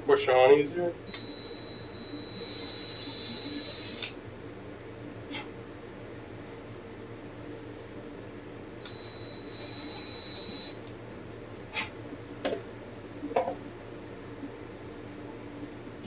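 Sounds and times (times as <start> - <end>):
heater humming: 0.0 - 16.0
thin high whine: 1.1 - 4.2, 8.8 - 10.8.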